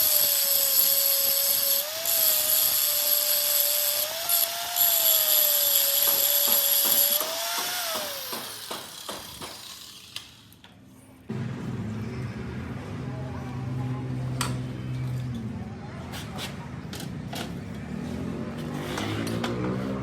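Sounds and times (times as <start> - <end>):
power tool whining on metal: 0.0 - 10.5.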